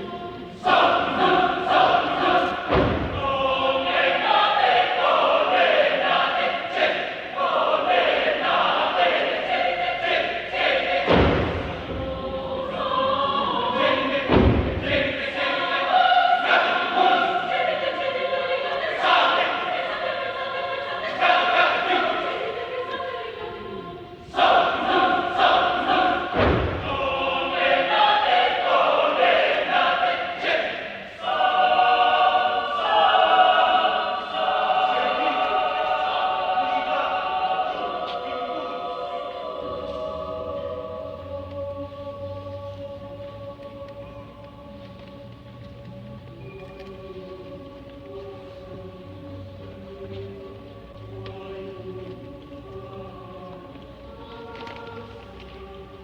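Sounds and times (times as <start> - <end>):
mixed choir singing chords: 0.0 - 56.0
low thump: 2.6 - 3.4, 11.0 - 12.2, 14.2 - 15.1, 26.3 - 27.0.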